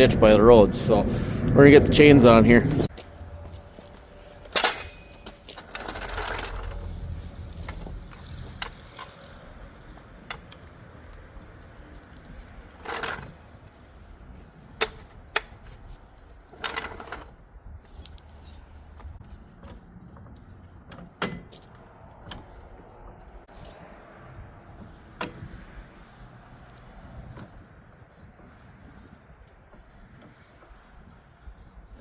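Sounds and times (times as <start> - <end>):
metal chain links rattling: 3.2 - 13.6, 14.5 - 17.4, 23.5 - 23.9.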